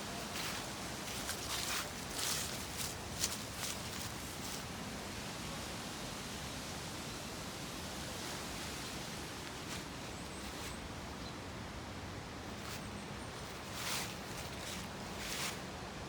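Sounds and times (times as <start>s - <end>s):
rushing outdoor background noise: 0.0s - 16.0s
faint rustles: 0.1s - 4.7s, 8.2s - 11.4s, 12.4s - 15.7s.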